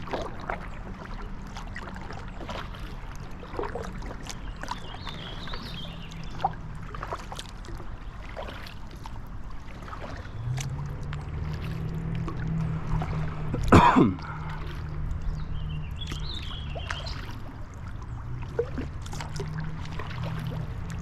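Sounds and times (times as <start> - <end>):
paddle splashing and dripping: 0.0 - 21.0
low rumble: 9.1 - 21.0.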